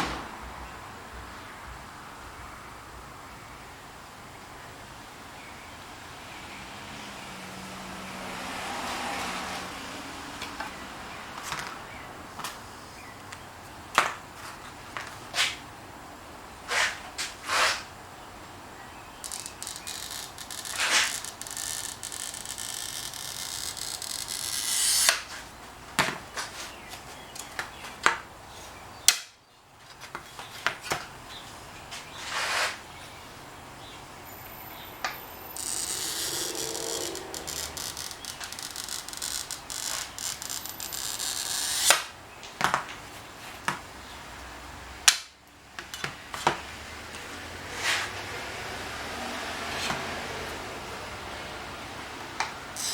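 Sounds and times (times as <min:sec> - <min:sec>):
glass cutter scoring glass: 0:19.2 - 0:25.4, 0:35.1 - 0:42.1.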